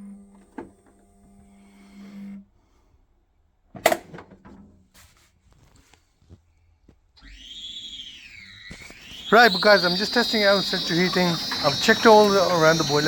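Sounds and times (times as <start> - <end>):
small motor humming: 0.0 - 2.4, 7.2 - 13.0.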